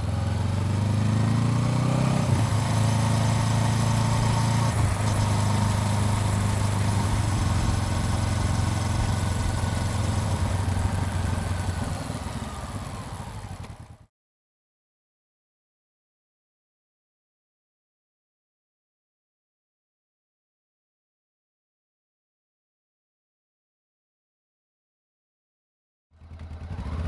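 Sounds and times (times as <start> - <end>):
motorcycle engine running: 0.0 - 14.1, 26.2 - 27.0.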